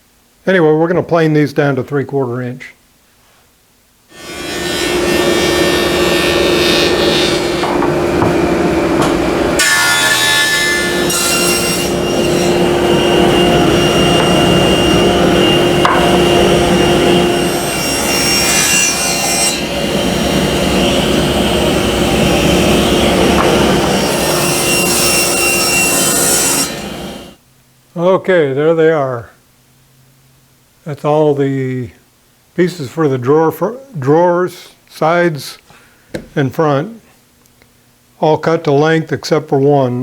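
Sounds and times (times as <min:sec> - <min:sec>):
woodworking machine motor: 0:04.2 - 0:11.2, 0:11.8 - 0:18.0, 0:19.6 - 0:25.2
wood being cut: 0:04.2 - 0:27.3.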